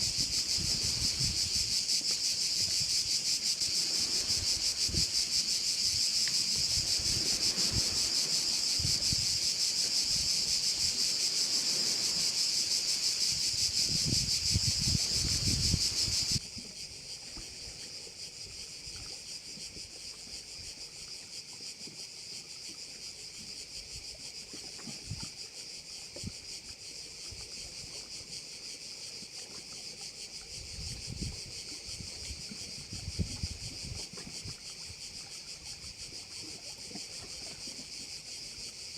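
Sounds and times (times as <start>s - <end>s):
wind rumble on microphone: 0.0s - 16.4s, 30.6s - 35.2s
crickets chirping: 0.0s - 38.9s.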